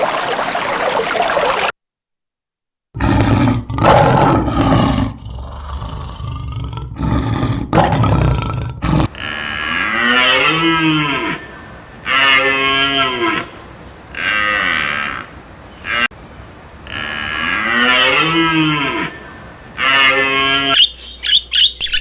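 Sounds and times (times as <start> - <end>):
farm animal calling: 9.0 - 20.8.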